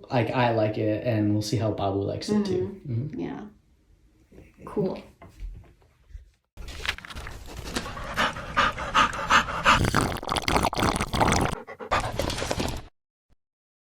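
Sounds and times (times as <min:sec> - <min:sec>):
dog panting: 0:07.4 - 0:09.8, 0:11.6 - 0:12.6.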